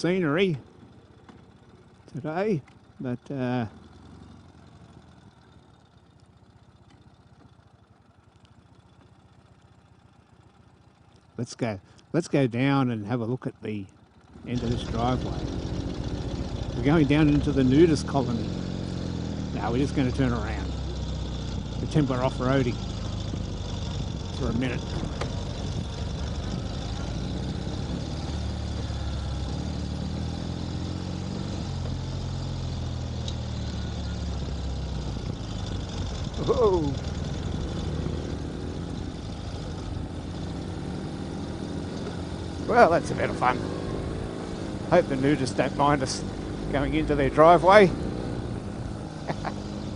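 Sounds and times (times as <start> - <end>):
faint motorcycle engine idling: 0.0 - 49.9
wind and road noise: 3.7 - 12.2, 13.9 - 49.9.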